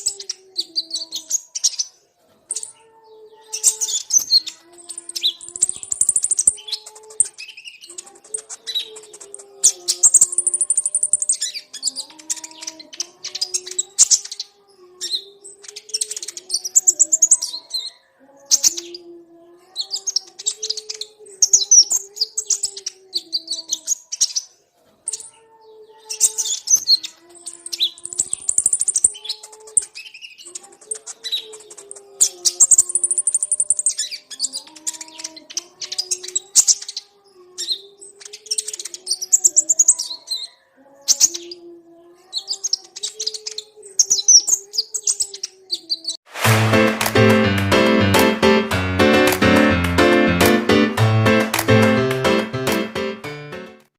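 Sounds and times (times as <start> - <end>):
birds chirping and twittering: 0.0 - 19.1
low held notes: 46.4 - 53.9.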